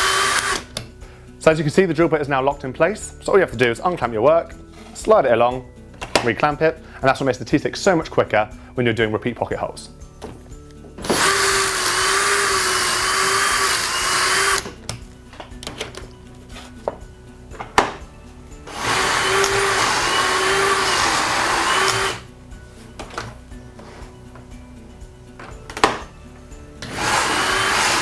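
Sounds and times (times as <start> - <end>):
drill boring holes: 0.0 - 0.8, 11.0 - 14.8, 18.7 - 22.3, 26.8 - 28.0.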